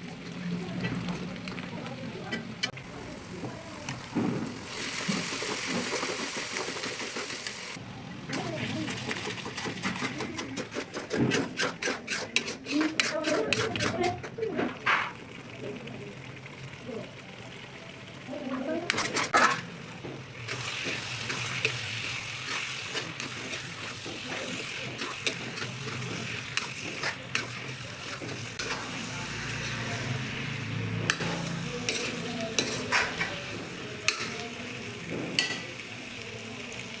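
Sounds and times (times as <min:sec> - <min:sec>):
food sizzling in a pan: 0:00.0 - 0:37.0
utensil scraping against pan: 0:08.3 - 0:15.2, 0:18.9 - 0:19.7, 0:20.4 - 0:30.1, 0:31.0 - 0:35.6.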